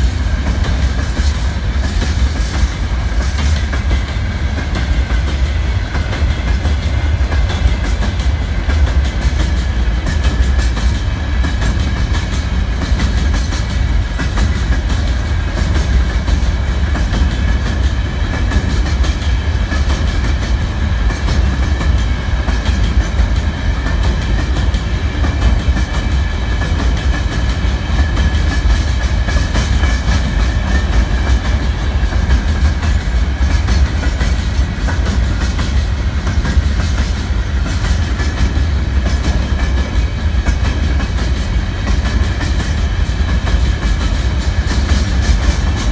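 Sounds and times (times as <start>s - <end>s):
freight train wheels rumbling: 0.0s - 45.9s.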